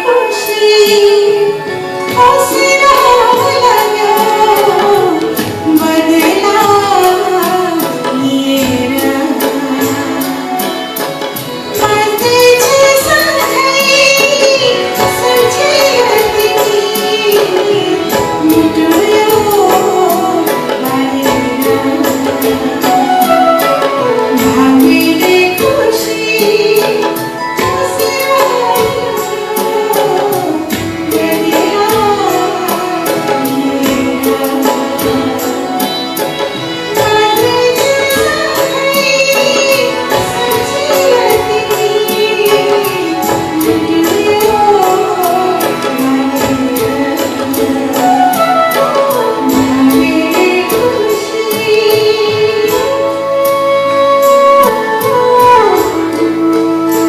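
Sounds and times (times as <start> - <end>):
accordion: 0.0 - 57.0
hand drums: 0.0 - 57.0
keyboard: 0.0 - 57.0
violins: 0.0 - 57.0
flute: 38.5 - 51.7, 52.3 - 57.0.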